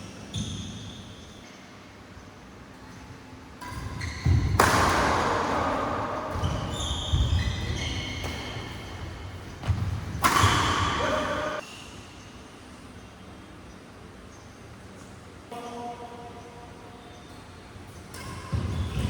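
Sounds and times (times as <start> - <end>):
shoes squeaking: 3.6 - 11.9
footwork thuds on court: 4.0 - 11.6.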